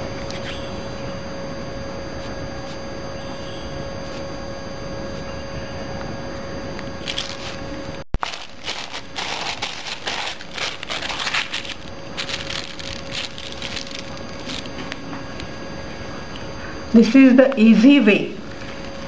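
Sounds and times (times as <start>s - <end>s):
electrical hum with tone: 0.0s - 19.0s
rustling handling noise: 7.0s - 15.2s.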